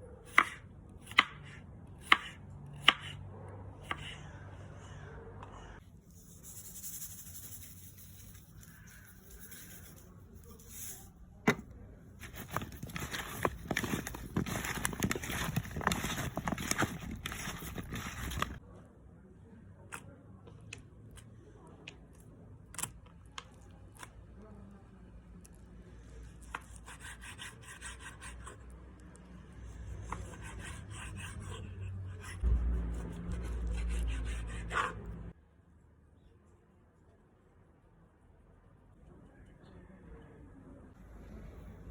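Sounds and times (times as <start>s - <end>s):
rubbing and scraping strokes: 5.9s - 11.2s, 12.2s - 18.6s.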